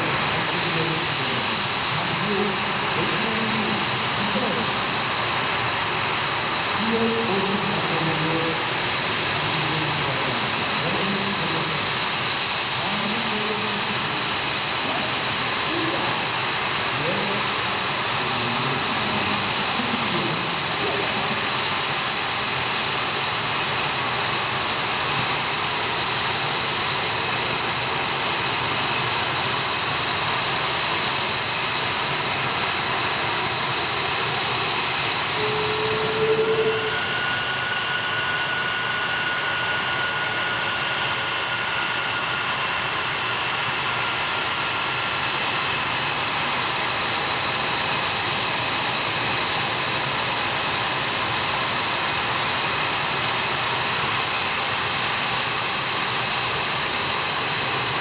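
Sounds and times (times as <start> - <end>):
jet engines whining: 0.0 - 58.0
low tone: 35.3 - 42.2.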